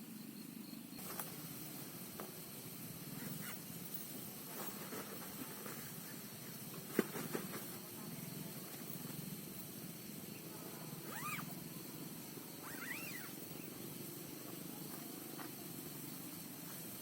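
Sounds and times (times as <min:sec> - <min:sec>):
rain hissing: 0:00.8 - 0:17.0
faint short calls: 0:11.0 - 0:11.6, 0:12.6 - 0:13.6.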